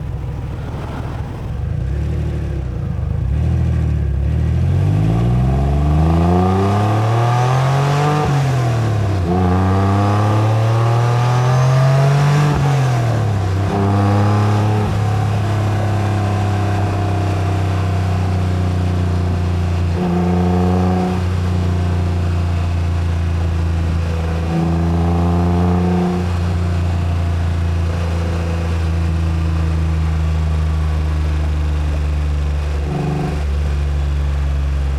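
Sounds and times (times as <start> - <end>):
car engine accelerating: 0.0 - 34.9.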